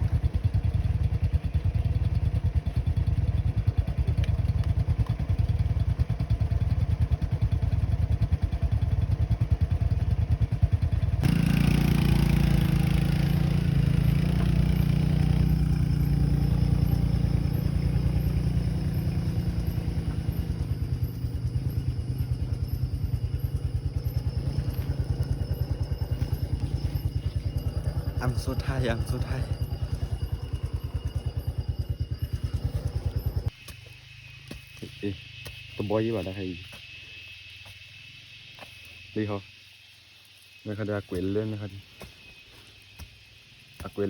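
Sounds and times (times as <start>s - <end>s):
motorcycle engine running: 0.0s - 35.8s.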